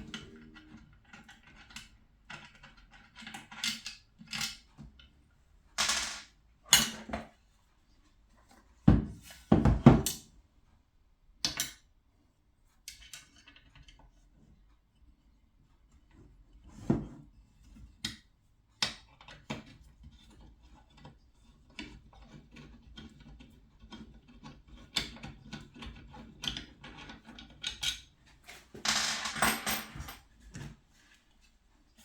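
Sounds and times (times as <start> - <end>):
metal tools clinking and knocking: 29.2 - 30.2.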